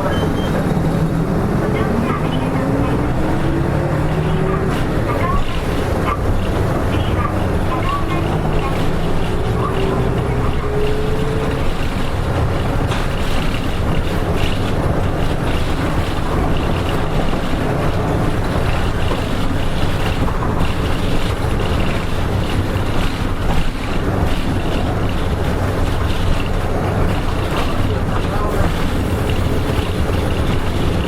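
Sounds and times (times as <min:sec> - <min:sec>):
bus engine hum: 0:00.0 - 0:31.0
road noise: 0:00.0 - 0:31.0.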